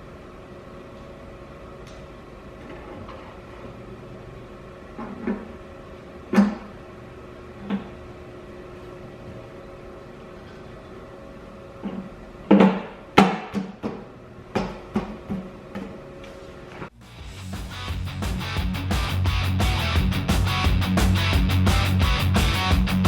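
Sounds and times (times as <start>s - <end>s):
faint steady hum: 0.0s - 13.2s.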